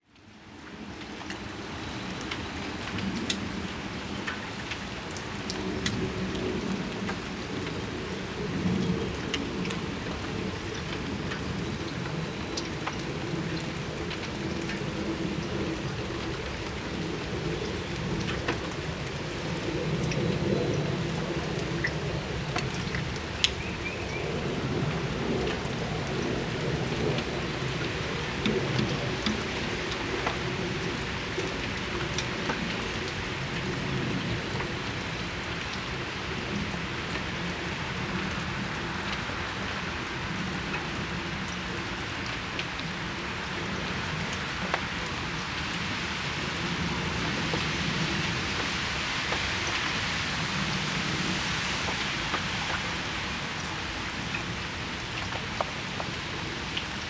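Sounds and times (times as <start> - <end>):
rain falling on a patio: 0.0 - 57.0.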